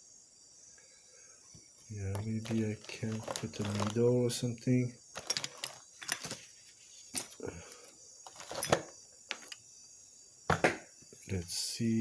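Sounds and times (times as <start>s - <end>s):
small tools clicking and tapping: 2.0s - 4.1s, 5.1s - 6.5s, 7.1s - 9.6s.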